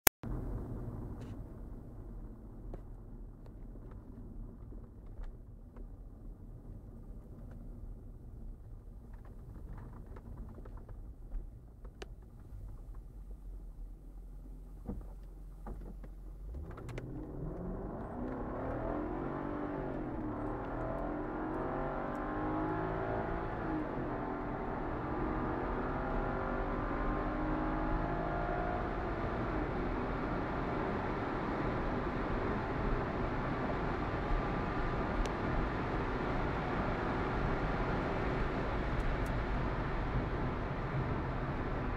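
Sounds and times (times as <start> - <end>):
car engine accelerating: 12.4 - 41.9.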